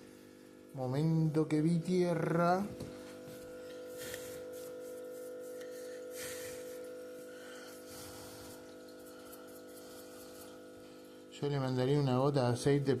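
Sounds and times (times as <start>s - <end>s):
steady tonal hum: 0.0s - 13.0s
handling and brushing noises: 2.9s - 7.3s.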